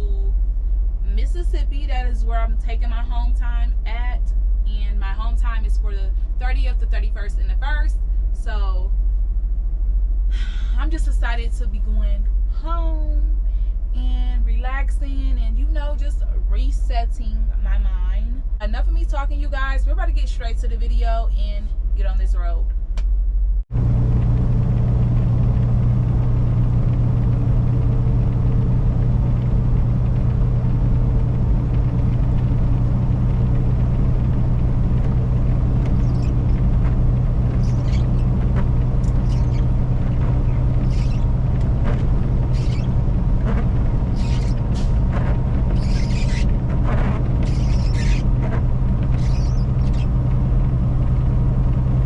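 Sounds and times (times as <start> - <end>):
road rumble: 0.0 - 52.0
truck engine drone: 22.7 - 52.0.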